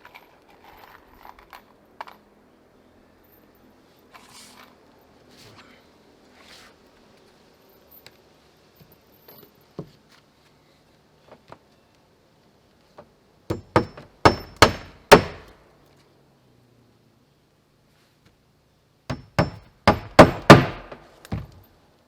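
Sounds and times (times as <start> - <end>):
hammer striking nails into wood: 13.5 - 15.5, 19.1 - 21.6.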